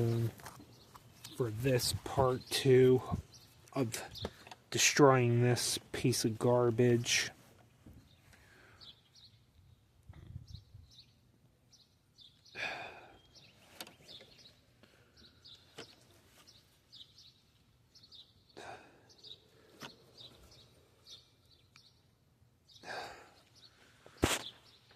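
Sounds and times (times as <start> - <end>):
faint bird chirps: 8.0 - 24.9.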